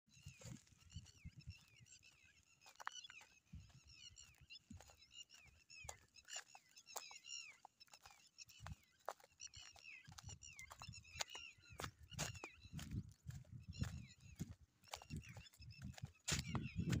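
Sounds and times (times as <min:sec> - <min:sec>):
rapid bird chirping: 0:00.1 - 0:17.0.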